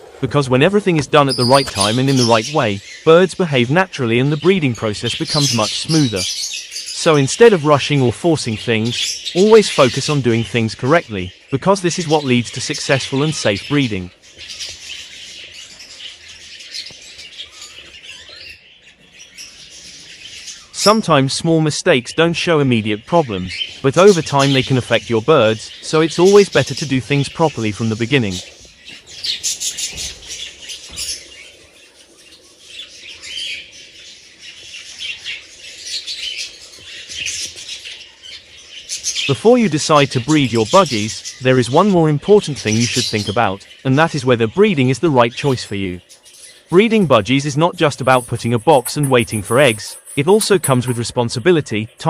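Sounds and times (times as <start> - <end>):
bird squawk: 0.0 - 7.3, 46.1 - 51.0
budgerigars chattering: 0.0 - 52.0.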